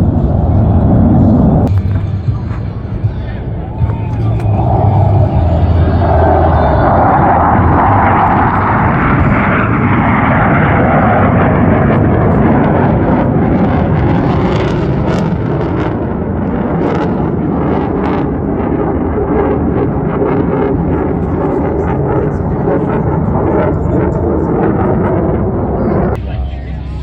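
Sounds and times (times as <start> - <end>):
military jet roaring: 0.0 - 27.0
ragged jet crackle: 1.2 - 3.0, 3.8 - 26.2.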